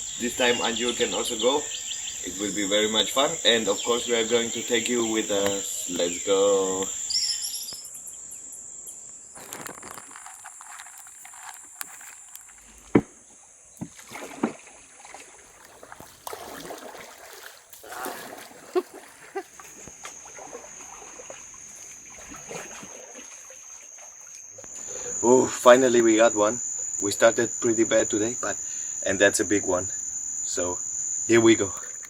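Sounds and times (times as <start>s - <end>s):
insects droning: 0.0s - 32.0s
water sloshing around a boat: 9.4s - 28.7s.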